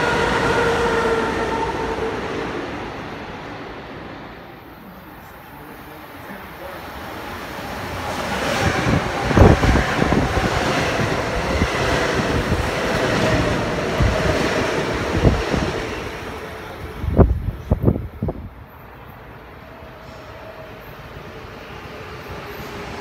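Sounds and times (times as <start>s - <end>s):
electric train passing: 0.0s - 23.0s
wind buffeting microphone: 8.0s - 18.6s.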